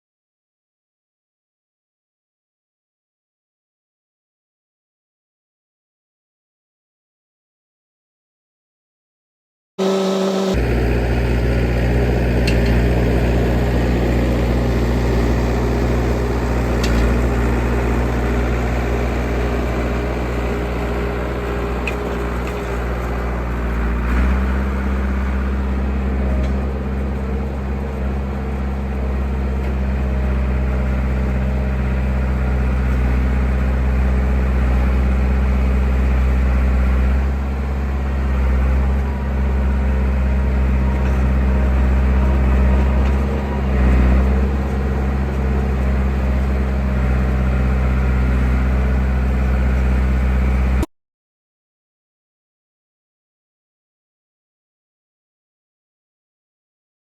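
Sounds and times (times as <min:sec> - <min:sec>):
bulldozer diesel engine running: 0:09.8 - 0:50.9.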